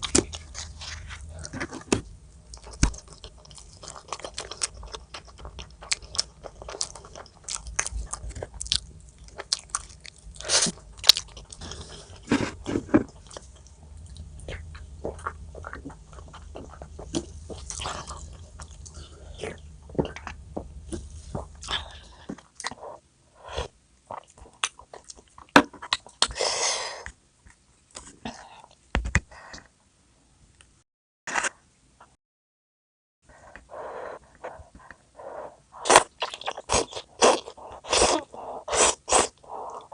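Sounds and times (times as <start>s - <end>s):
person chewing crunchy food: 0.0s - 23.0s, 24.0s - 26.5s, 33.7s - 39.9s.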